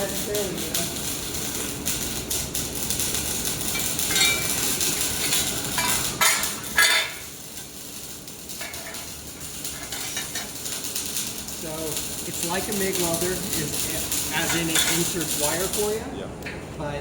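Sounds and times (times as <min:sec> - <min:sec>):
metal clinking and clattering: 0:03.6 - 0:07.7, 0:08.6 - 0:11.3
sharp metal clanks: 0:03.7 - 0:07.3.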